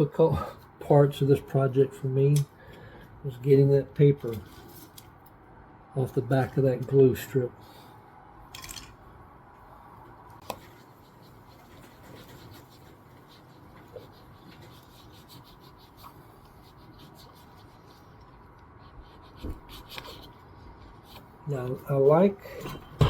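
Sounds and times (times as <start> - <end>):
fingernail scratching paper: 10.6 - 21.3.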